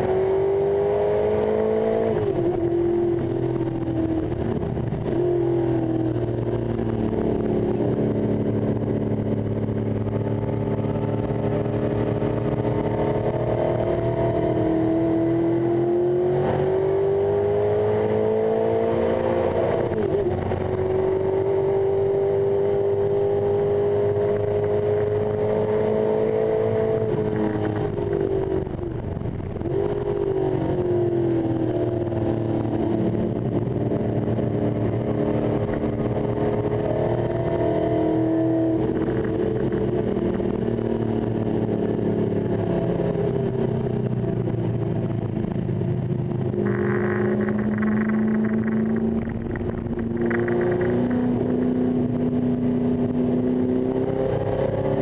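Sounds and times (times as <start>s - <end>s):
race car engine revving: 45.4s - 55.0s.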